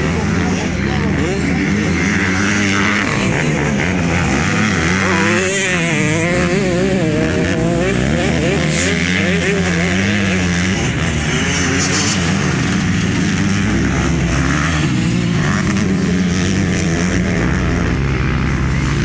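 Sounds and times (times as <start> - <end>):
motocross bike engines revving: 0.0 - 19.0
steady engine din: 0.0 - 19.0.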